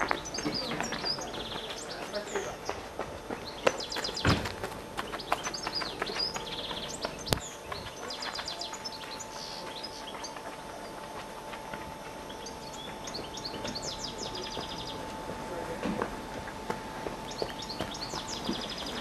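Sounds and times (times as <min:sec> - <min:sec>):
small birds trilling: 0:00.0 - 0:15.6, 0:17.1 - 0:19.0
faint steady hum: 0:00.0 - 0:19.0.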